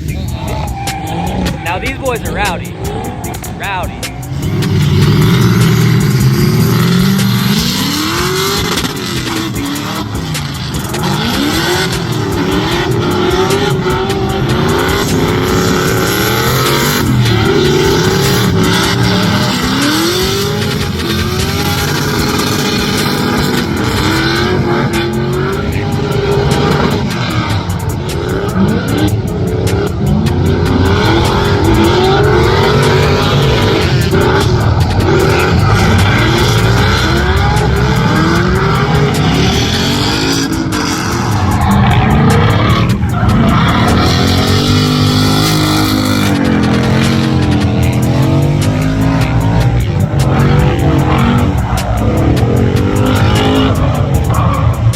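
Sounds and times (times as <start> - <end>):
tyre squeal: 0.0 - 1.8
car engine revving: 0.0 - 54.9.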